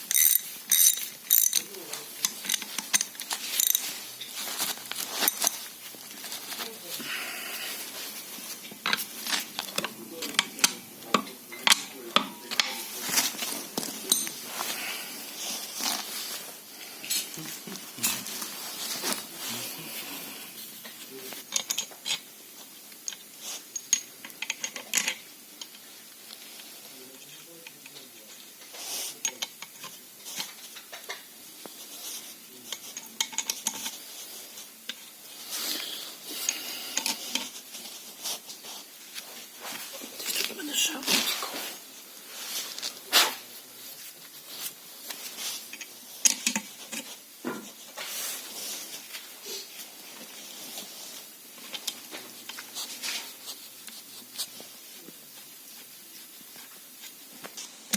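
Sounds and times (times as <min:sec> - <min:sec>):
metal tools clinking: 0:00.0 - 0:06.7, 0:08.8 - 0:14.8.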